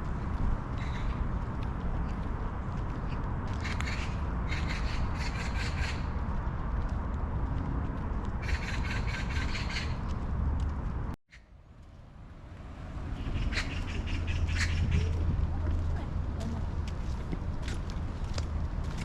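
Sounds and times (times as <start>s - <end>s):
bird rapid calls: 0.8s - 1.2s, 3.6s - 6.1s, 8.4s - 10.1s, 13.2s - 15.2s.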